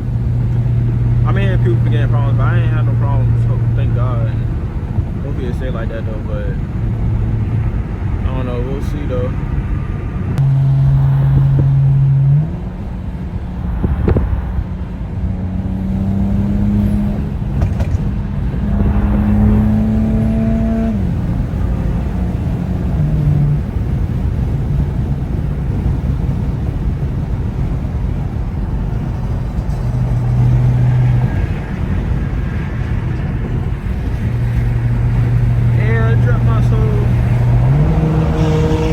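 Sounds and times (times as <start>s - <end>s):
car engine droning: 0.0s - 38.9s.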